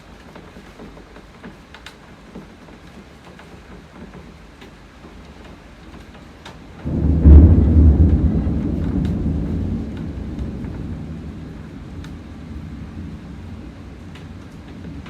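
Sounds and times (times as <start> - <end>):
light rain with drips: 0.0 - 15.0
thunderclap rumbling: 6.8 - 15.0.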